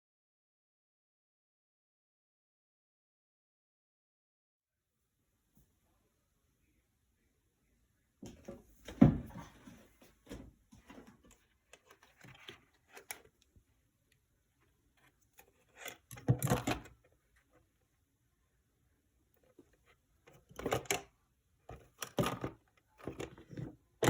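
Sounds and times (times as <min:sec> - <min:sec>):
knocks and rattles of handling: 0:08.3 - 0:13.5, 0:14.6 - 0:17.8, 0:19.3 - 0:24.0.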